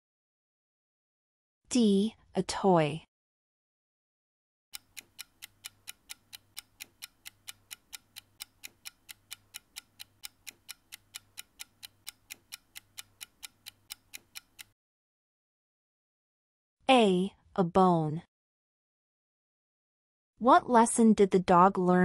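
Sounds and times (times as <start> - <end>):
countdown timer ticking: 4.8 - 14.8.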